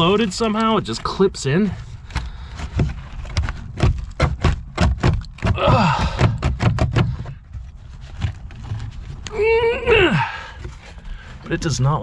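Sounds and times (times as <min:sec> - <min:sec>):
person grunting: 0:05.5 - 0:06.3, 0:09.3 - 0:10.6.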